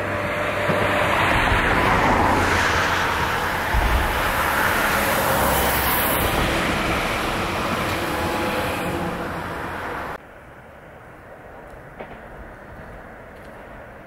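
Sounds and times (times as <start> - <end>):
train wheels rumbling on rail: 0.0 - 10.2.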